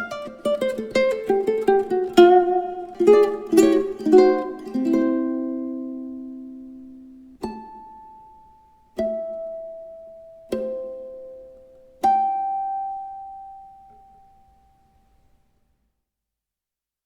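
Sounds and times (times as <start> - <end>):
ukulele chords: 0.0 - 15.0.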